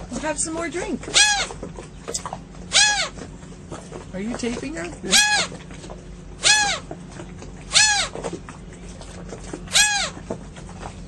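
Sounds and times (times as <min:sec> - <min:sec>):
faint low hum: 0:00.0 - 0:11.0
seagull calling: 0:01.0 - 0:01.7, 0:02.7 - 0:03.3, 0:05.0 - 0:05.6, 0:06.4 - 0:07.0, 0:07.7 - 0:08.3, 0:09.6 - 0:10.2.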